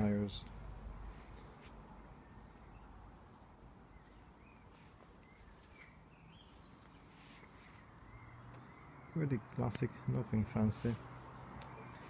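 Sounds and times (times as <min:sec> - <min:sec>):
faint outdoor hiss: 0:00.0 - 0:12.0
faint bird chirps: 0:02.2 - 0:10.2.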